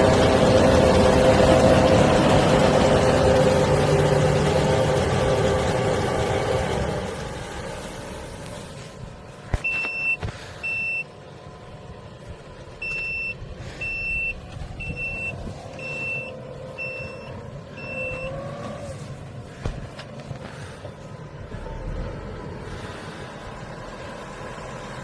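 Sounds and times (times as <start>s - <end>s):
tractor engine running: 0.0s - 25.0s
electronic warning beeps: 9.6s - 11.1s, 12.8s - 18.5s.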